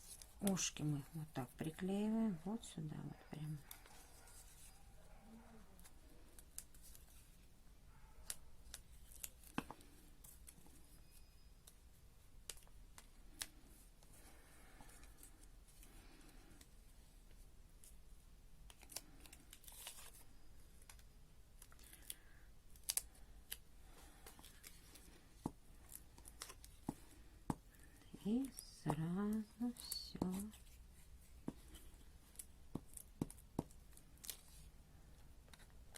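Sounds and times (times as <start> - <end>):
paper rustling: 18.7 - 21.0.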